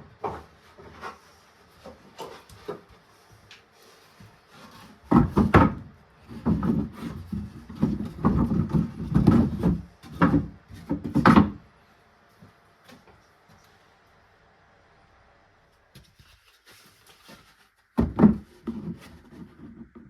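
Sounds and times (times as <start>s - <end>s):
wood knocking and scraping: 0.0s - 3.0s, 4.0s - 11.6s, 17.2s - 20.0s.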